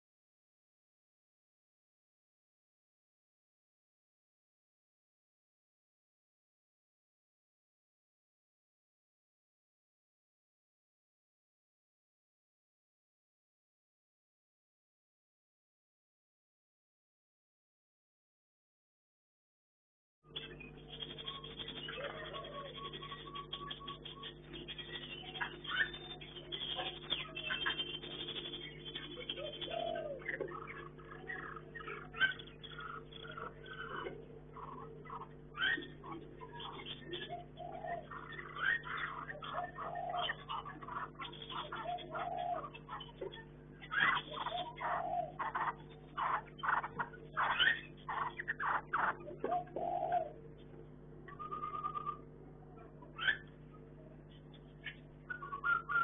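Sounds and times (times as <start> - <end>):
caged birds chirping: 20.3 - 56.0
steady low hum: 20.3 - 56.0.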